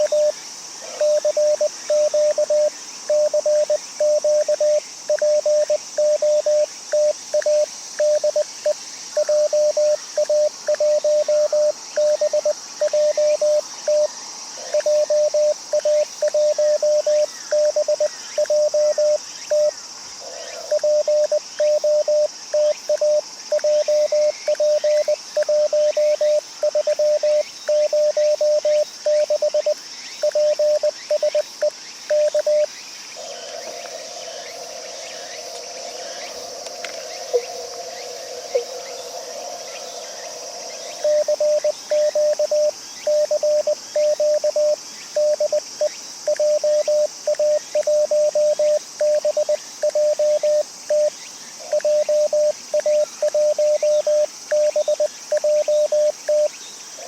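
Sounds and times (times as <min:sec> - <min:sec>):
morse code tone: 0:00.0 - 0:00.3, 0:01.0 - 0:08.4, 0:09.2 - 0:14.1, 0:14.8 - 0:19.7, 0:20.7 - 0:31.4, 0:41.0 - 0:45.6, 0:46.3 - 0:51.1, 0:51.8 - 0:56.5
high insect buzz: 0:00.0 - 0:57.0.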